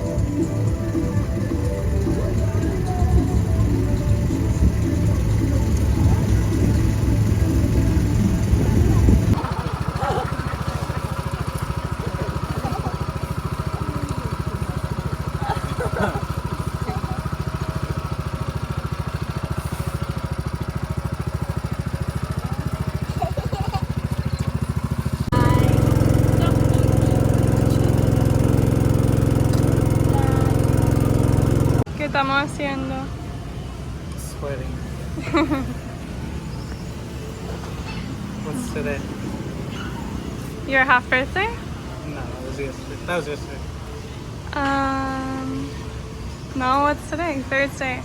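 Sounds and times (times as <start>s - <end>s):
loud low rumble: 0.0s - 9.8s, 25.2s - 31.9s
small engine idling: 0.0s - 48.0s.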